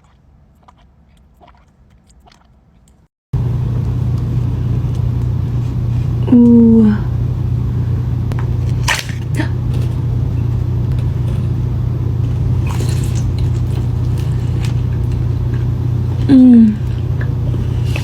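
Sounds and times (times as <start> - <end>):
crunchy bites of food: 0.0 - 3.1, 8.4 - 11.6, 12.2 - 18.0
idling car rumble: 3.4 - 18.0.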